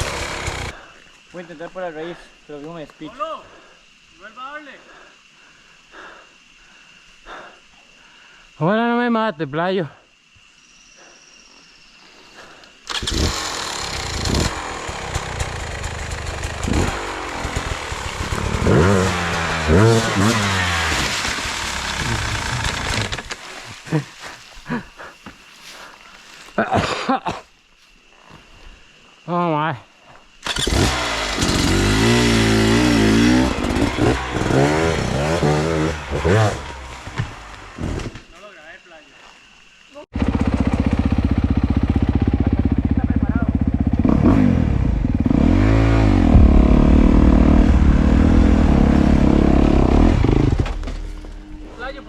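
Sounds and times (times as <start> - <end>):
dirt bike engine revving: 0.0 - 0.8, 12.9 - 23.3, 30.4 - 38.2, 40.1 - 52.0.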